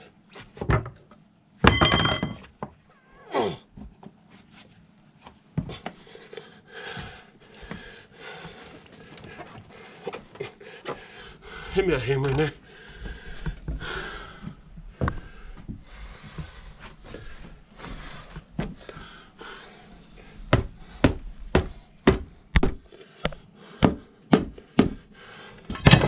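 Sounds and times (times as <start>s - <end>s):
knocks and scraping: 0.4s - 2.8s.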